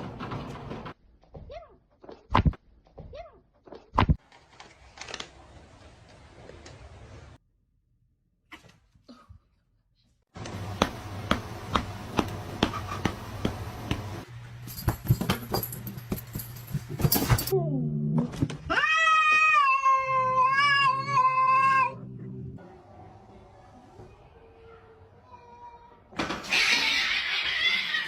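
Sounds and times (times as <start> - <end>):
low hum: 21.8 - 23.8.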